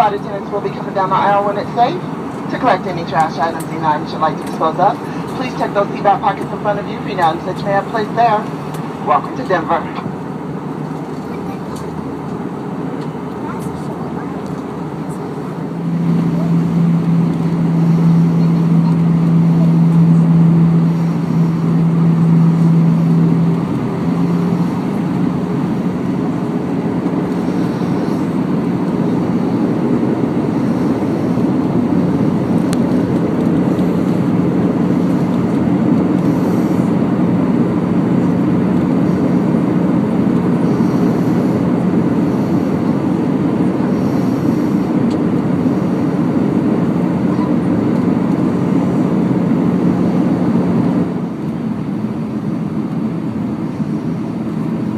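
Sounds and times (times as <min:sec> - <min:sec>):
low engine hum: 0:00.0 - 0:54.9
rush of airflow: 0:04.9 - 0:05.6, 0:09.9 - 0:47.2.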